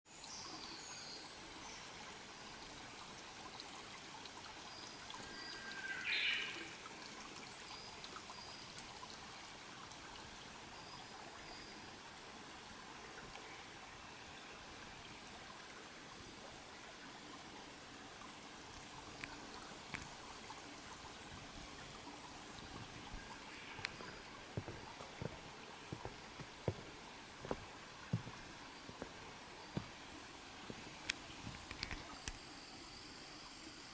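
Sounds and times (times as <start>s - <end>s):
small stream trickling: 0.1s - 33.9s
light ticks: 13.3s - 13.5s, 18.7s - 20.2s, 31.0s - 32.4s.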